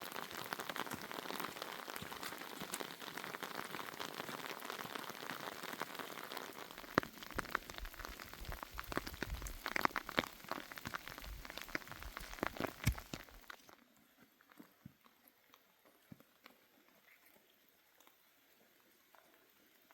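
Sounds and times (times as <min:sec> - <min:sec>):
steady rain falling: 0:00.0 - 0:13.7
sharp taps and knocks: 0:12.2 - 0:13.3.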